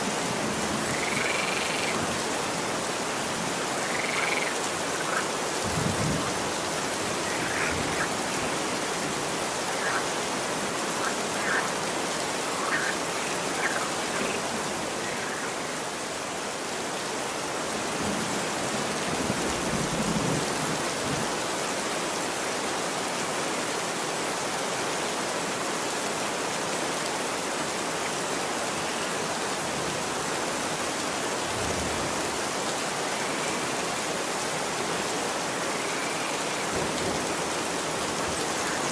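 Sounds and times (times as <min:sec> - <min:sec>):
steady rain on a street: 0:00.0 - 0:38.9
faint frog croaks: 0:00.8 - 0:02.0, 0:03.8 - 0:05.3, 0:07.1 - 0:08.7, 0:09.6 - 0:10.2, 0:10.9 - 0:15.8, 0:33.2 - 0:33.9, 0:35.6 - 0:36.7, 0:38.3 - 0:38.9.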